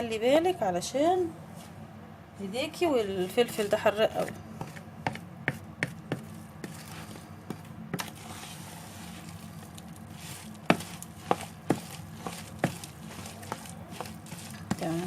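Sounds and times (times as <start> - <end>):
soft scraping: 6.1 - 15.0.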